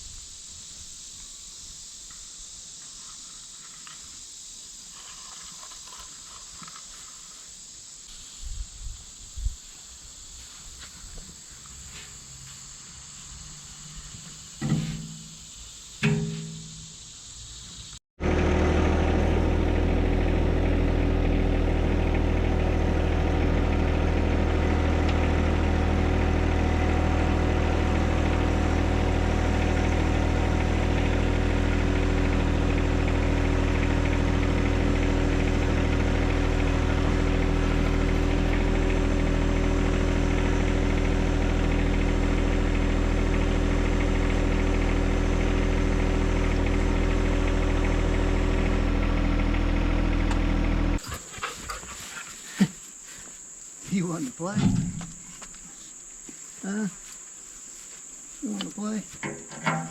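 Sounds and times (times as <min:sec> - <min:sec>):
tractor diesel engine running: 0:18.2 - 0:55.7.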